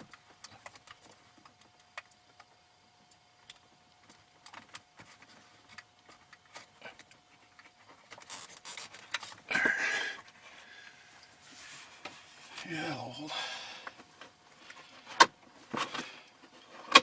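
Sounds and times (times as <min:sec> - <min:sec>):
cable scraping against plastic: 0:08.1 - 0:09.4.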